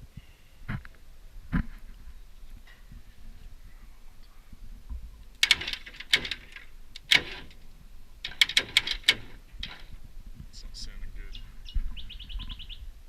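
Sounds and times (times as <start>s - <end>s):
sharp metallic clicks: 5.3s - 7.6s, 8.2s - 10.0s.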